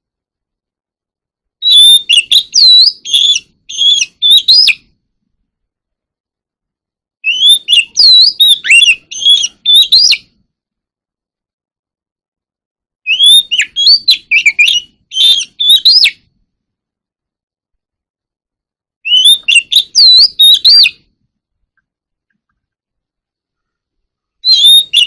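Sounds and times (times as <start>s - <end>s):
bird singing whistled notes: 1.6s - 4.9s, 7.2s - 10.3s, 13.0s - 16.3s, 19.0s - 21.1s, 24.4s - 25.0s.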